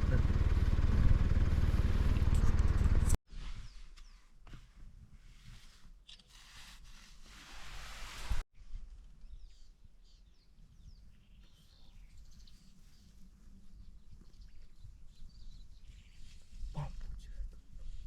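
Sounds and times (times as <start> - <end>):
low rumble: 0.0 - 3.2.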